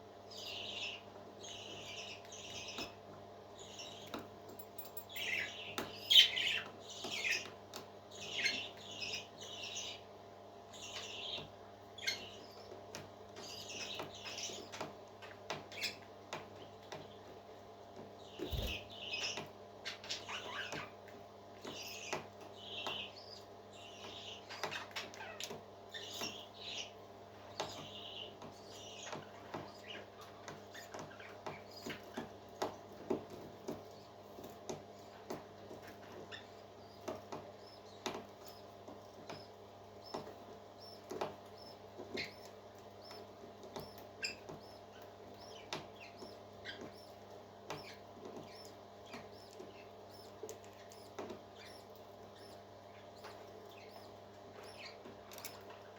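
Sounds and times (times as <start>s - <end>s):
parrot chick peeping: 18.3s - 20.9s, 34.7s - 55.9s
steady low hum: 18.4s - 19.1s.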